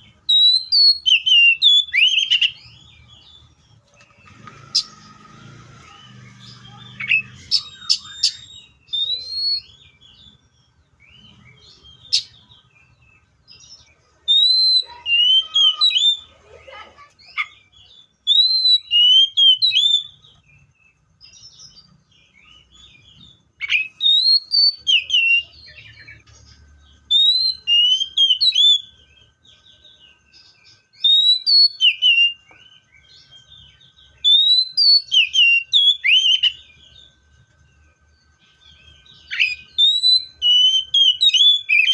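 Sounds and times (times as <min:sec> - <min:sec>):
bird singing whistled notes: 0:00.0 - 0:16.3, 0:17.3 - 0:41.9.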